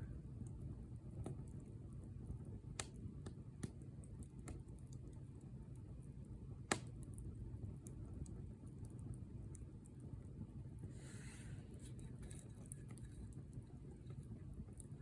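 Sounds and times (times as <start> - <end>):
bonfire crackling and popping: 0.0 - 15.0.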